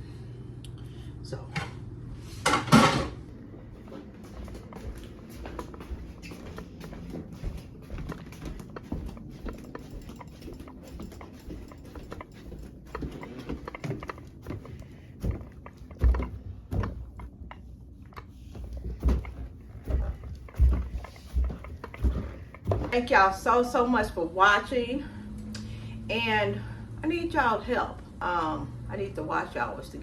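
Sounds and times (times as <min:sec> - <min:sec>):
small clicks and knocks: 0:04.3 - 0:23.0.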